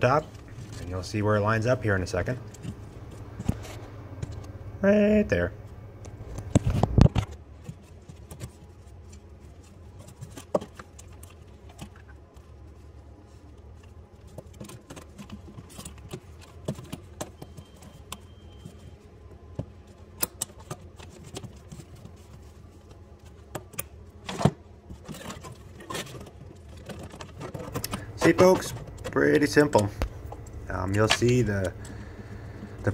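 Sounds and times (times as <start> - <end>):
low steady hum: 0.0 - 32.9.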